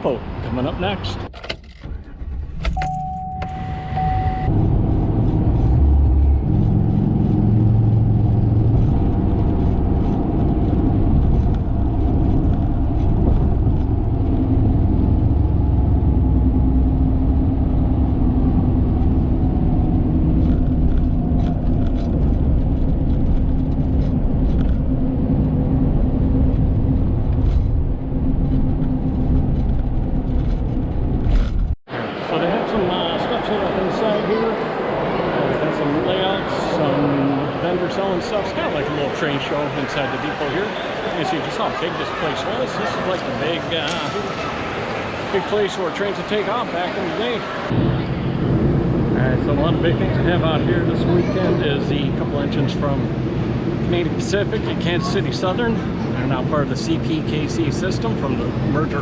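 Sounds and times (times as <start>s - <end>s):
car engine and road noise: 0.0s - 59.0s
steady electronic tone: 2.8s - 8.7s.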